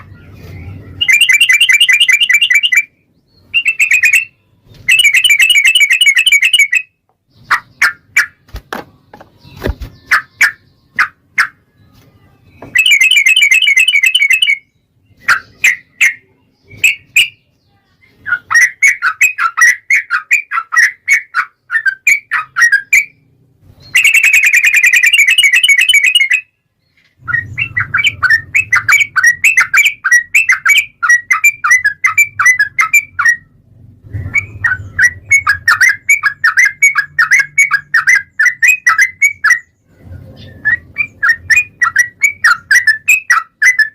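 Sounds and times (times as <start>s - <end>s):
bird chattering notes: 0.0s - 8.4s, 12.6s - 17.4s, 23.9s - 26.4s
bird rapid trills: 23.9s - 26.4s.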